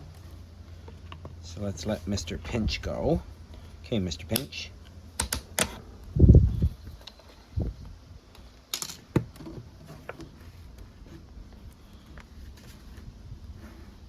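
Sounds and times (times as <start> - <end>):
sharp clicks: 5.2 - 5.8.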